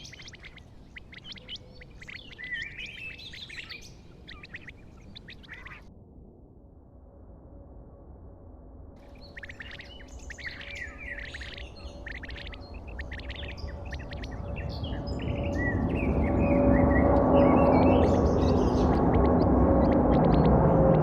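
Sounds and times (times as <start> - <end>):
birds chirping: 0.0 - 5.9, 9.0 - 21.0
low rumble: 4.8 - 21.0.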